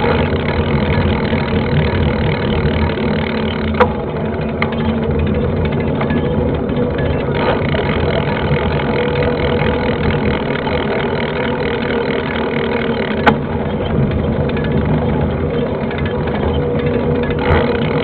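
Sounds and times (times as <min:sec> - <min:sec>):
bike tires rolling: 0:00.0 - 0:18.0
wind rumble: 0:13.4 - 0:17.4.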